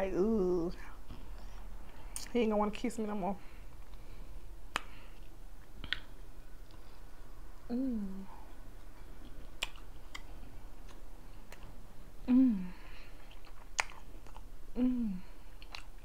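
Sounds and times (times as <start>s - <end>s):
person chewing with wet clicks: 4.7s - 7.0s, 8.8s - 11.8s, 13.0s - 14.5s, 15.4s - 16.0s
woman humming mm: 7.7s - 8.5s, 12.2s - 12.8s, 14.7s - 15.3s.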